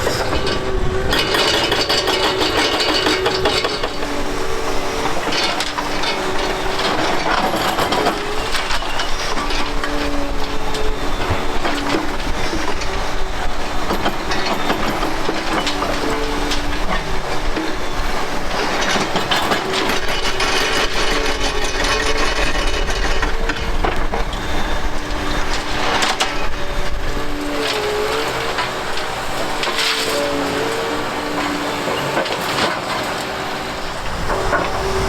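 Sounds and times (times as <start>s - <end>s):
excavator machine whines: 0.0s - 35.0s.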